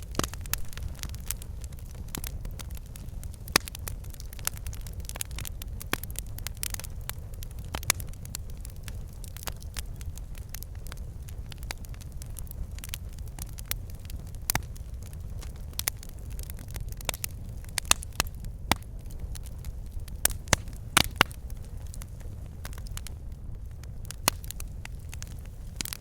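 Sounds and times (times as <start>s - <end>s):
fire rumbling: 0.0s - 26.0s
logs crackling and popping: 0.0s - 26.0s.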